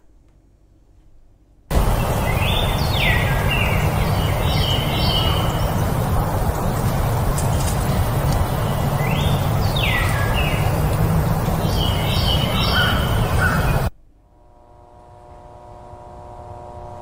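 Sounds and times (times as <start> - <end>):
birds chirping: 1.7 - 13.9
woodland background hiss: 1.7 - 13.9.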